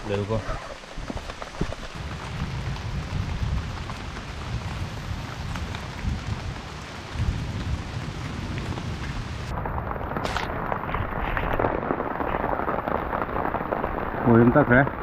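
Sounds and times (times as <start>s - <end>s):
rain pattering on a leaf: 0.0s - 15.0s.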